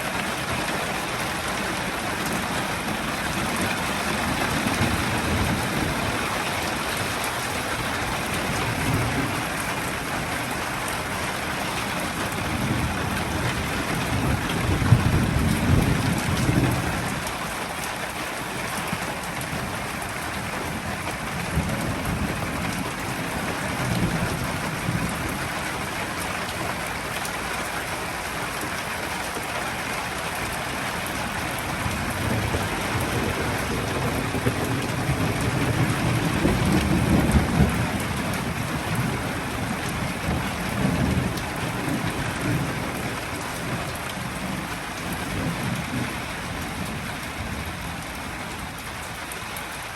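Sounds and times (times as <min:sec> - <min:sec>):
steady rain falling: 0:00.0 - 0:49.9
thunder rumbling: 0:01.6 - 0:17.3, 0:30.4 - 0:48.8.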